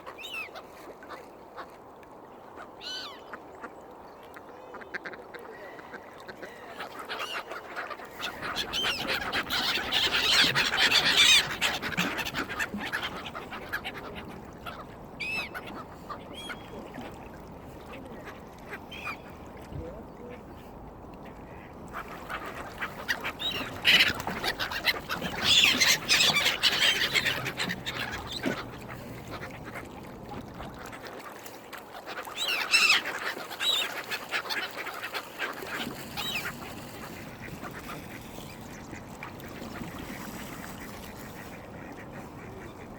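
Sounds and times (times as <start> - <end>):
ducks quacking and honking: 4.8 - 17.1, 21.5 - 29.9.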